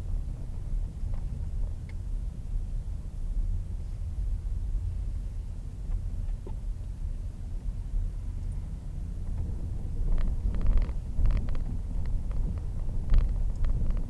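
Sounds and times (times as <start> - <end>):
vehicle engine rumble: 0.0 - 14.0
wind on microphone: 9.4 - 14.0.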